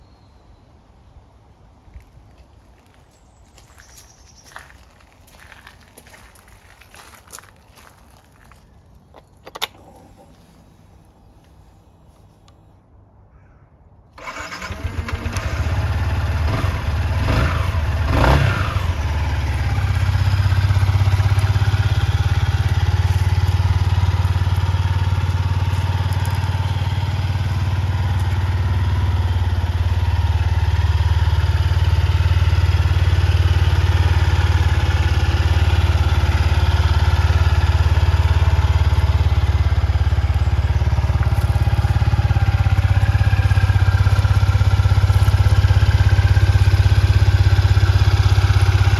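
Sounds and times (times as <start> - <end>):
motorcycle engine starting and idling: 8.4 - 12.6, 14.2 - 48.9.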